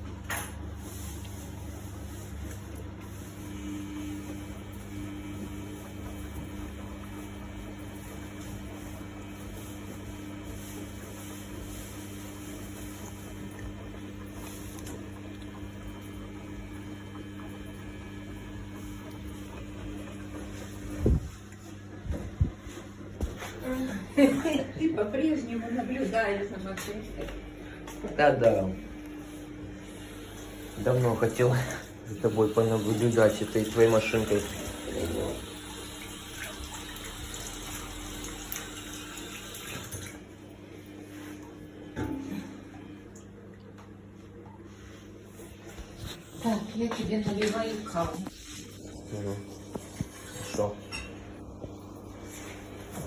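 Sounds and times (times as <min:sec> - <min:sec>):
washing machine hum: 0:00.0 - 0:53.0
water sloshing in washing machine: 0:00.0 - 0:53.0.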